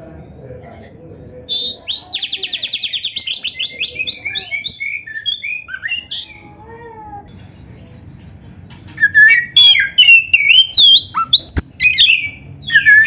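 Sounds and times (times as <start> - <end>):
songbird singing: 0.7 - 6.6, 7.2 - 13.0.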